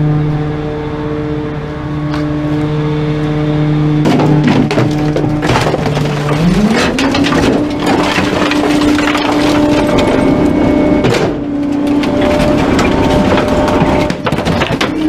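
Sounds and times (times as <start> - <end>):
truck engine hum: 0.0 - 15.0
items cracking and crunching: 4.1 - 10.6, 11.6 - 15.0.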